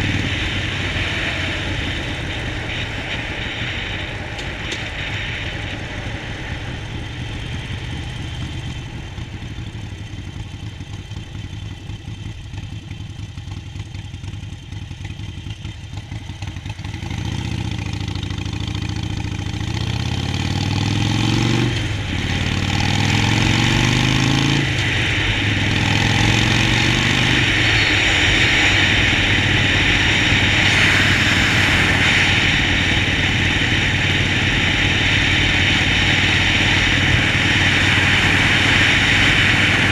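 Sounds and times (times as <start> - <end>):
loud rushing wind noise: 0.0 - 10.6, 19.1 - 39.9
motorcycle engine accelerating: 0.0 - 39.9.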